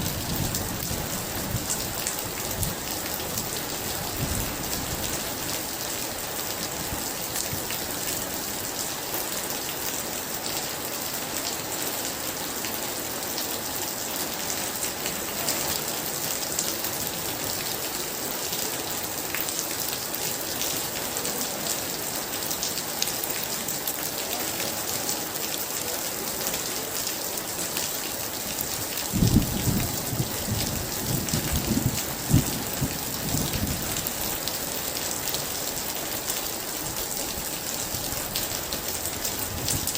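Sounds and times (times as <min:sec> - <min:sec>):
heavy rain pouring: 0:00.0 - 0:39.9
thunder rumbling: 0:29.2 - 0:33.8.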